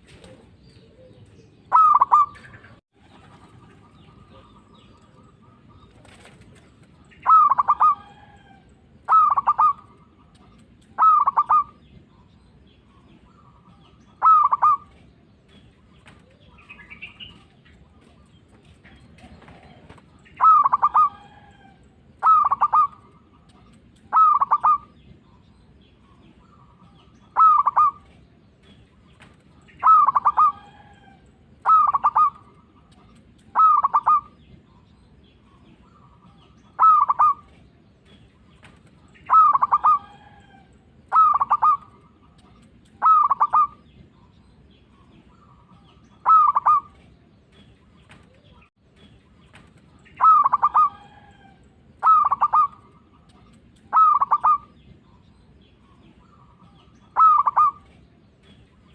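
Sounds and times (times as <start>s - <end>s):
dove cooing: 0.0s - 11.9s, 13.3s - 15.3s, 15.9s - 24.9s, 26.4s - 28.8s, 29.6s - 34.5s, 35.6s - 37.8s, 38.6s - 43.8s, 45.1s - 47.2s, 50.1s - 54.7s, 56.3s - 58.2s.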